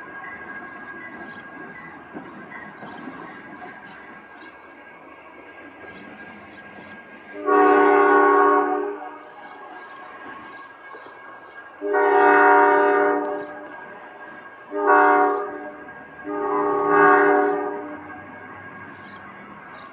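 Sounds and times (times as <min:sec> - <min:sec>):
locomotive horn blasts: 0:07.3 - 0:09.4, 0:11.8 - 0:14.0, 0:14.7 - 0:19.0.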